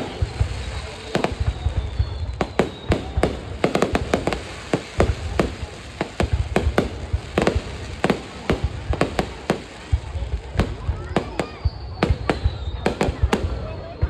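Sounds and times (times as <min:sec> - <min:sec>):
fireworks banging: 0:00.0 - 0:14.0.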